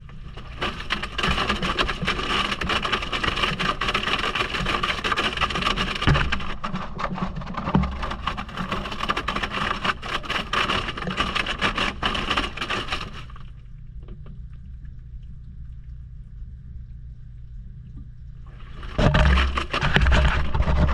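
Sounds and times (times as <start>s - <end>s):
water sloshing in washing machine: 0.0s - 13.7s, 18.4s - 20.9s
low steady hum: 0.0s - 20.9s.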